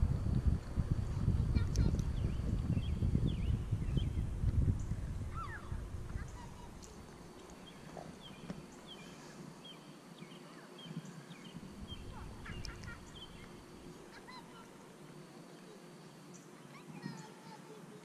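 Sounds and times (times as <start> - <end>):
low rumble: 0.0 - 7.1
birds chirping: 1.5 - 18.0.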